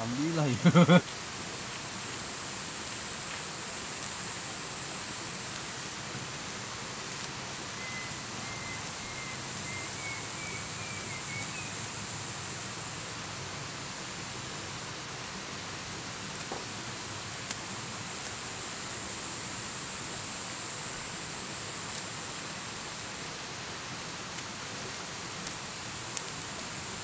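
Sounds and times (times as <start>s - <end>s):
rushing hiss: 0.0s - 27.0s
faint chirps: 7.2s - 11.9s.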